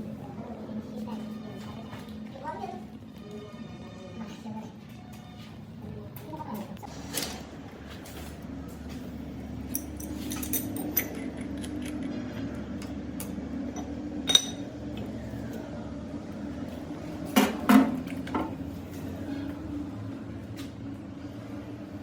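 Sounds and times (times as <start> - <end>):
metal tools clinking and knocking: 9.7 - 12.1, 13.8 - 14.7.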